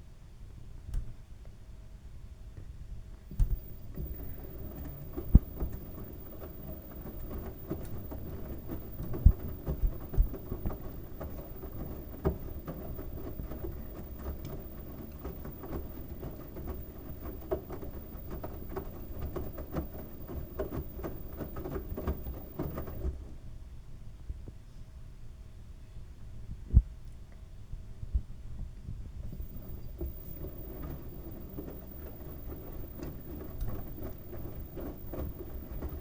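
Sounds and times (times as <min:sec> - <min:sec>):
washing machine rumble: 0:03.2 - 0:23.4, 0:29.2 - 0:36.0.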